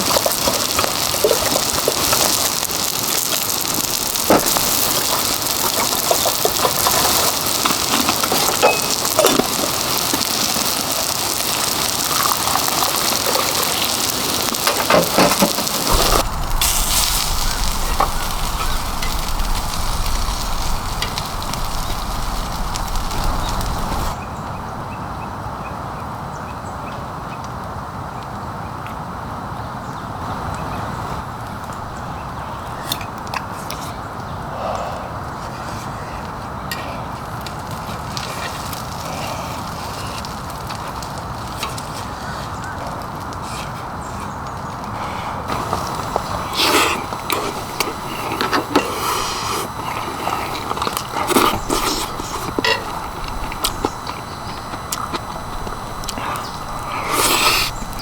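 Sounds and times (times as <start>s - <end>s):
heavy rain falling: 0.0s - 25.9s, 37.1s - 58.0s
wind: 0.0s - 58.0s
low rumble: 15.9s - 25.4s.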